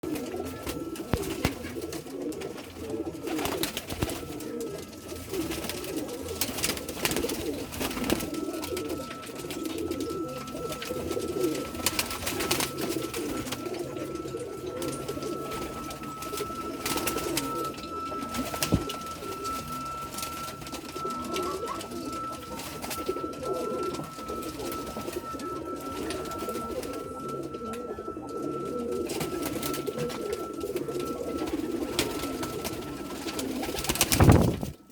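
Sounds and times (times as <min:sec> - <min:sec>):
pigeons cooing: 0:00.0 - 0:34.9
faint high tone: 0:06.6 - 0:34.2.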